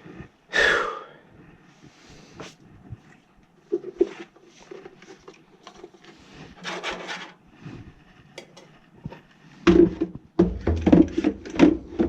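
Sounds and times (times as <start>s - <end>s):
metal parts rubbing and scraping: 3.8s - 7.5s.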